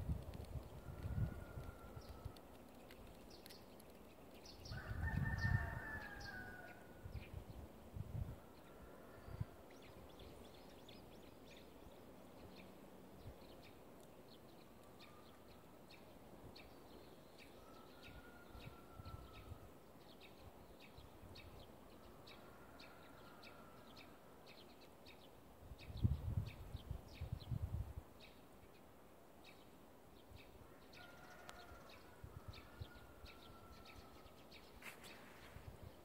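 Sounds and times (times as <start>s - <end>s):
small birds chirping: 0.1s - 4.8s.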